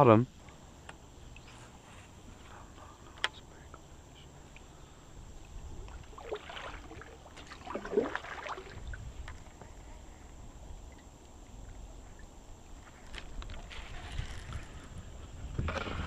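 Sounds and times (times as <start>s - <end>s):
water splashing: 5.4s - 9.6s.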